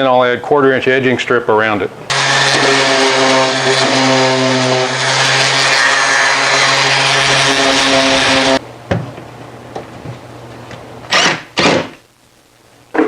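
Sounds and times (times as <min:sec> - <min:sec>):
power saw cutting plywood: 0:02.1 - 0:08.6.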